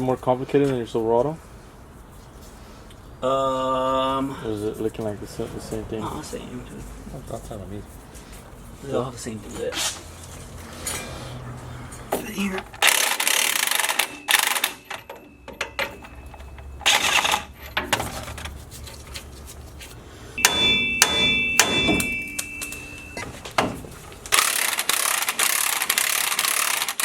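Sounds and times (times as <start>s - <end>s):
metal tools clanking: 10.4s - 18.6s, 20.4s - 24.3s
ringing metallic clang: 13.8s - 17.1s, 20.4s - 24.1s
sharp knocks: 20.4s - 24.0s.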